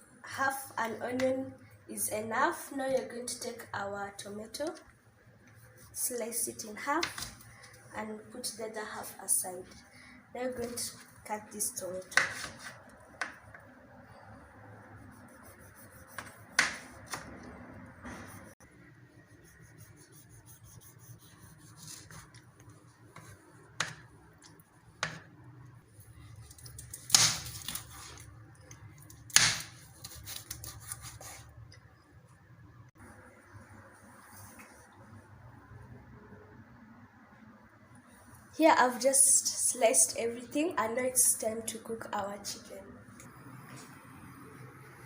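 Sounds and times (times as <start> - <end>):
knife slicing tomato: 15.1 - 17.4, 19.4 - 22.5, 29.2 - 31.5.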